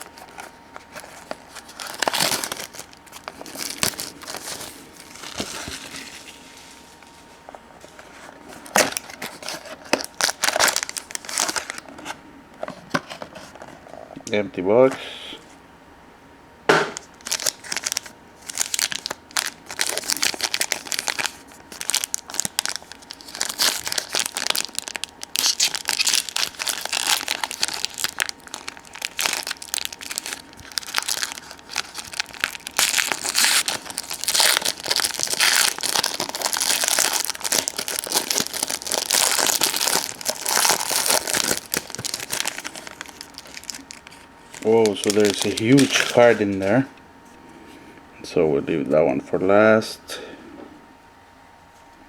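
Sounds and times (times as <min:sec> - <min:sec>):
card wrapping crinkling and tearing: 0:00.0 - 0:07.0, 0:07.8 - 0:12.1, 0:16.9 - 0:46.8.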